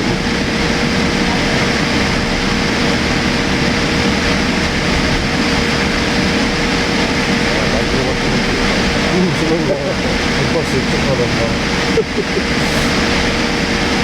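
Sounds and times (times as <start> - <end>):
airliner cabin engine rush: 0.0 - 14.0
constant hum tone: 0.0 - 14.0.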